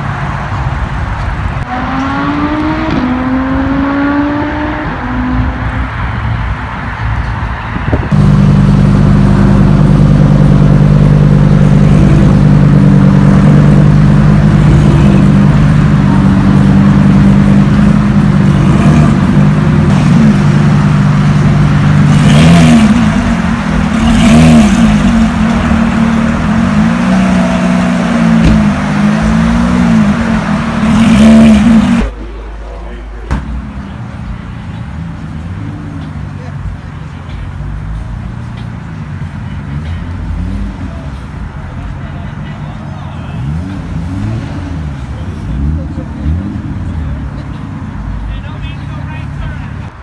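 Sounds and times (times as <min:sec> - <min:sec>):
car engine idling and revving: 0:00.0 - 0:50.0.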